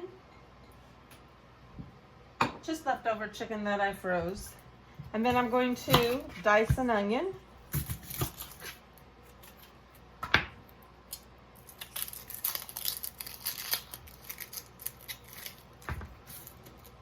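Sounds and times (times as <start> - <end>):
onion skin crackling and tearing: 7.7 - 9.8, 11.0 - 17.0.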